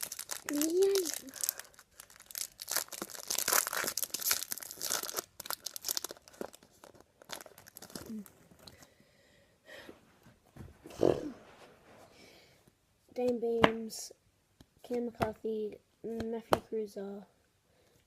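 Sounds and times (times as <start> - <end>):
card wrapper tearing and crinkling: 0.0 - 8.7.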